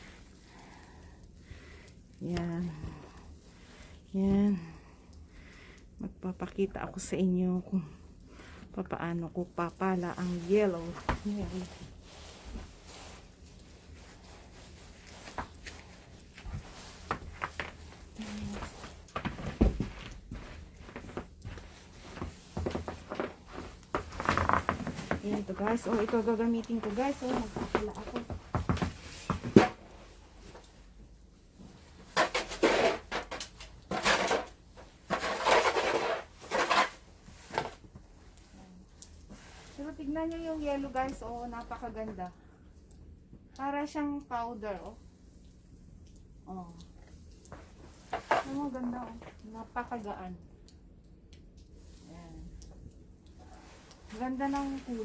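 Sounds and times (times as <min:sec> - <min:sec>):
snow shovel scraping snow: 0:35.1 - 0:37.0.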